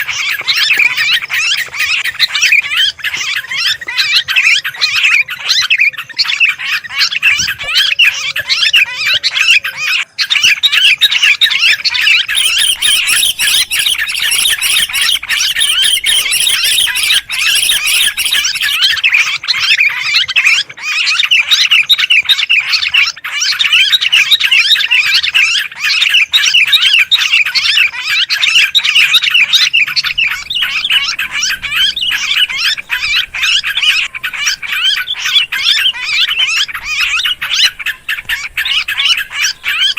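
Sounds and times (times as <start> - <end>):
birds chattering and squawking: 0.0 - 39.9.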